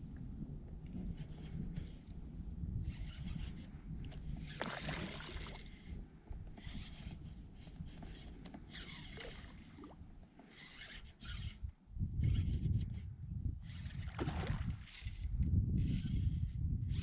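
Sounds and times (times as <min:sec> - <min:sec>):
wind on microphone: 0:00.0 - 0:17.0
water splashing against hull: 0:04.4 - 0:05.8, 0:14.0 - 0:14.9.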